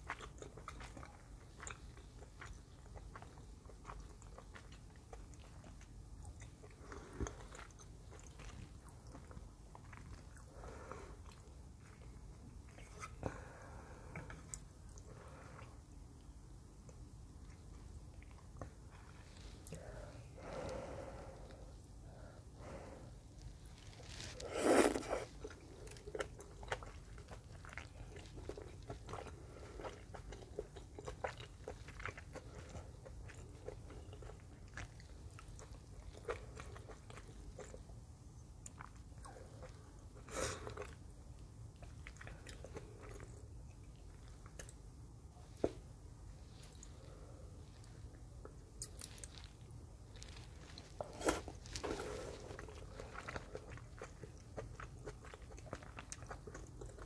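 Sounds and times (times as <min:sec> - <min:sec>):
chewing and mouth sounds: 0:00.0 - 0:19.8, 0:23.4 - 0:57.0.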